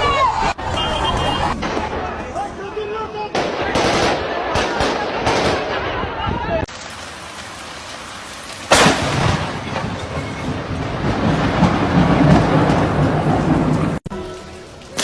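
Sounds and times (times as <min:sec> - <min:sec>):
thunderclap and rolling rumble: 0:00.0 - 0:14.1
rain-like hiss: 0:06.7 - 0:10.2.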